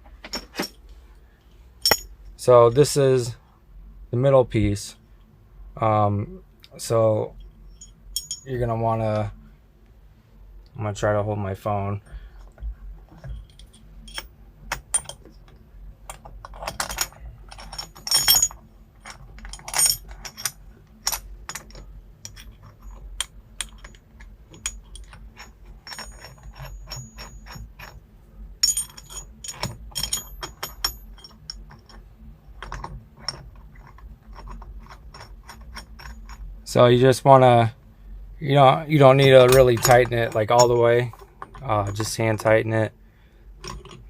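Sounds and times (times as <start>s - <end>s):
metallic clicks of bolts handled: 1.8s - 2.1s, 13.2s - 27.9s, 28.6s - 32.0s, 39.2s - 42.5s
ringing metal clinks: 1.8s - 2.1s, 7.4s - 8.6s, 16.8s - 18.6s, 28.6s - 31.7s, 39.5s - 41.0s.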